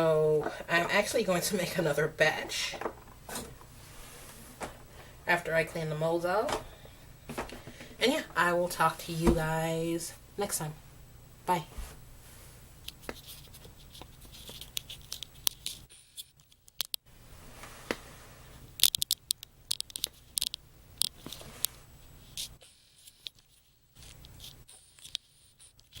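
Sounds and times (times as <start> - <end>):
steady low hum: 0.0 - 16.2
small objects clicking and tapping: 18.8 - 21.2.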